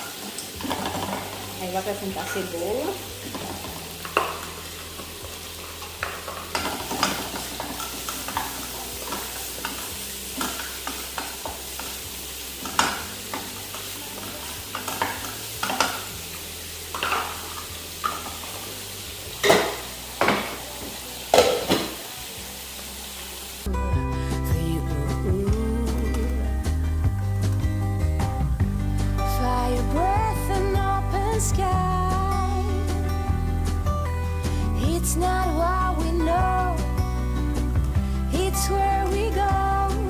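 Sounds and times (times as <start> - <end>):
onion sizzling in pan: 0.0 - 23.7
spoon scraping and knocking pan: 5.8 - 12.0, 12.6 - 16.2, 16.9 - 18.6.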